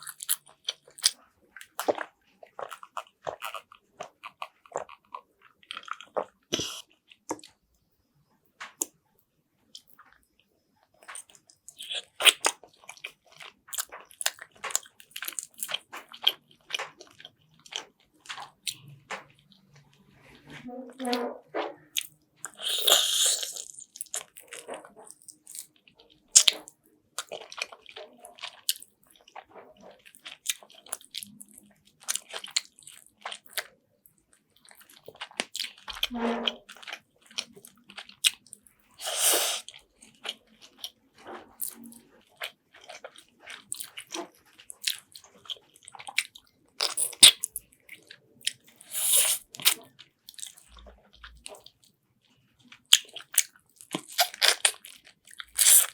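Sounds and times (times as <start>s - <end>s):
wet chewing and crunching: 0.0s - 7.6s, 9.7s - 55.9s
slurping: 39.0s - 39.8s, 48.7s - 49.8s, 55.6s - 55.9s.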